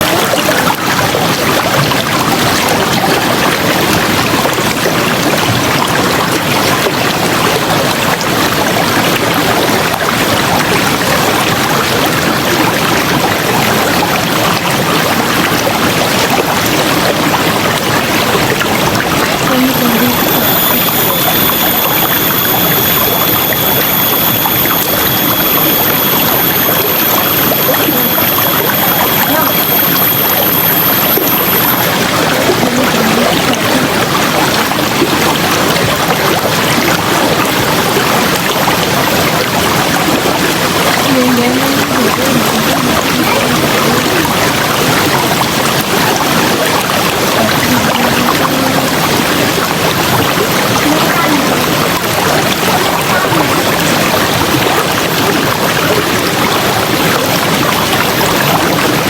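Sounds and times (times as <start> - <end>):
river water flowing: 0.0 - 59.0
thin high whine: 19.3 - 35.0.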